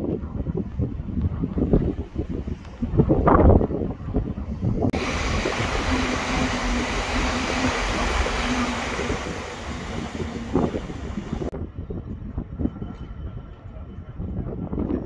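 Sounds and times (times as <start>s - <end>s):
steady hum: 5.0s - 11.5s
train rushing past: 5.0s - 11.5s.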